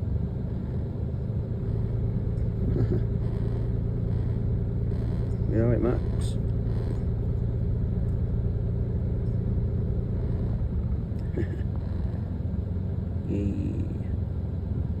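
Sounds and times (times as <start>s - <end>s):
car engine rumble from inside: 0.0s - 15.0s
faint pitched sounds: 1.5s - 7.4s.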